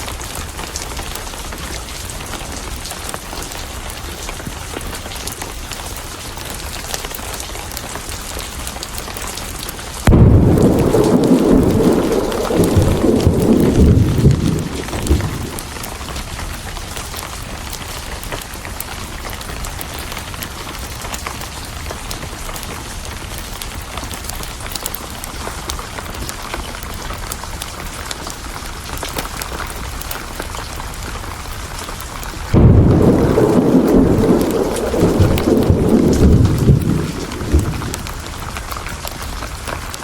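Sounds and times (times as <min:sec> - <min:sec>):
heavy rain: 0:00.0 - 0:40.0
thunder rumble: 0:10.0 - 0:16.5, 0:32.5 - 0:39.2.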